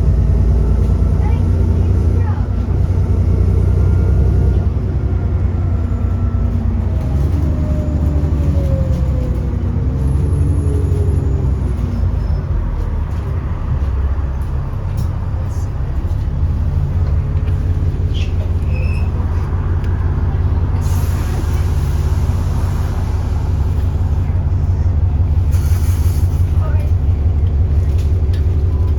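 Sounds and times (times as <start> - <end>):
bus drivetrain whine: 0.0 - 28.9
bus engine drone: 0.0 - 28.9.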